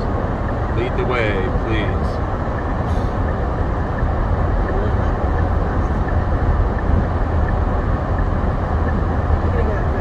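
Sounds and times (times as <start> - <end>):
car engine rumble: 0.0 - 10.0
wind noise: 2.0 - 10.0.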